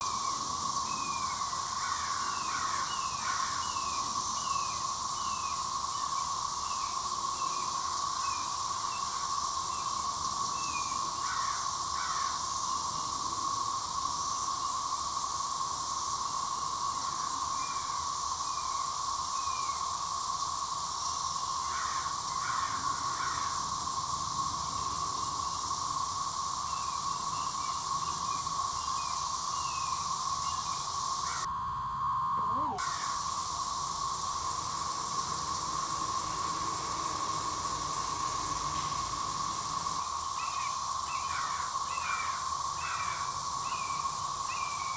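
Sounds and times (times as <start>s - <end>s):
cicadas droning: 0.0s - 44.9s
bird chirps sliding down: 31.3s - 32.9s.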